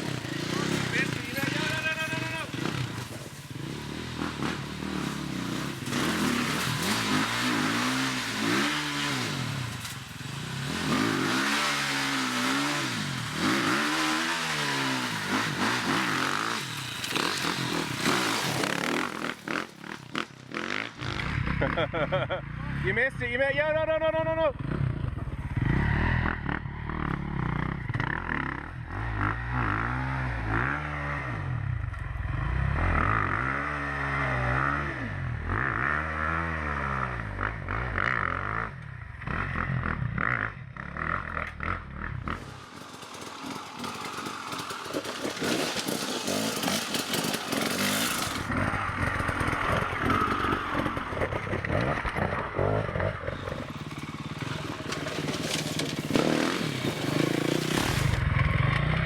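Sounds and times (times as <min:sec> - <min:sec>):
gritty rush with clattering: 0:00.0 - 0:22.1, 0:41.3 - 0:59.0
motorcycle engine revving: 0:00.0 - 0:23.0, 0:24.5 - 0:59.0.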